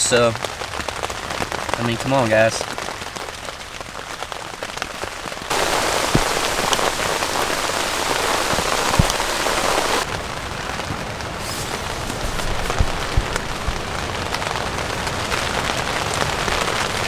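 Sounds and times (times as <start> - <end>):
steady rain falling: 0.0 - 17.0
sharp drip taps: 5.5 - 10.0.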